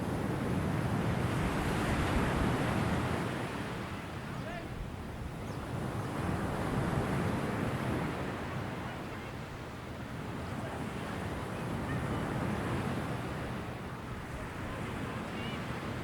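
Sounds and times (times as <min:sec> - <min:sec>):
ocean waves washing in: 0:00.0 - 0:04.3.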